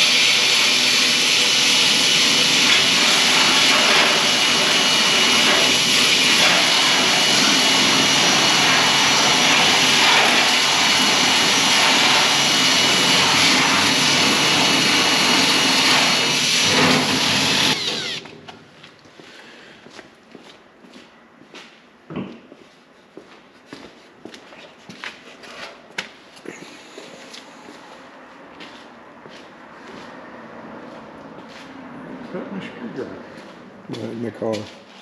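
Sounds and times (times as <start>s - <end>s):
drill disc grinding metal: 0.0s - 18.4s.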